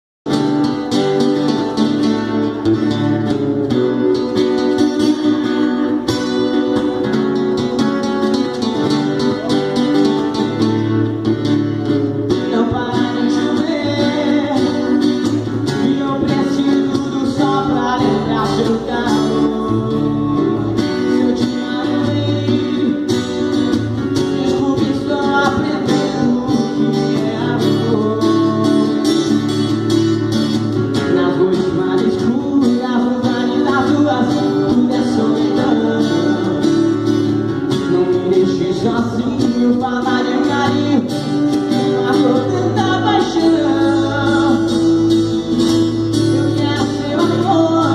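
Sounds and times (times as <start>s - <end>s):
strummed acoustic guitar: 0.3s - 47.9s
low bass notes: 15.2s - 32.6s.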